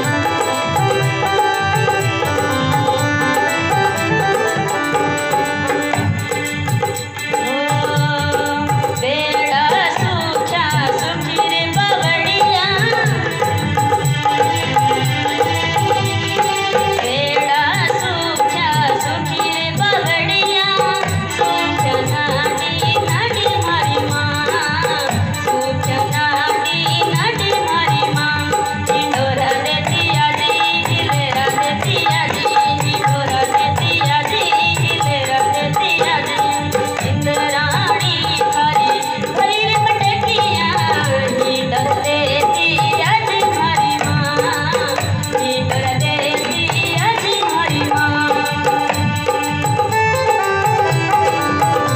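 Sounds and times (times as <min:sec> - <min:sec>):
rattling percussion: 0:00.0 - 0:51.9
hand drum beat: 0:21.5 - 0:51.9.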